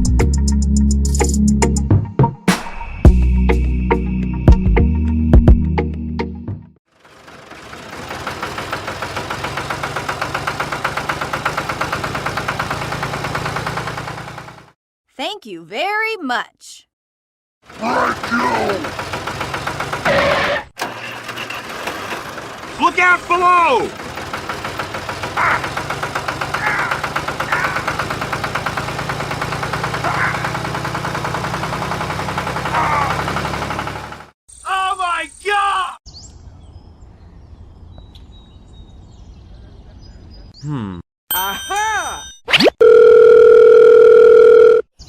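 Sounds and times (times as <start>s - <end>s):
small engine chugging: 6.9s - 14.8s, 17.6s - 34.3s.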